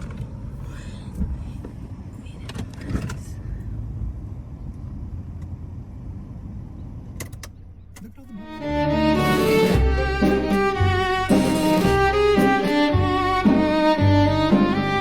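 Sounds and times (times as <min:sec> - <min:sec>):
vehicle engine and road rumble: 0:00.0 - 0:15.0.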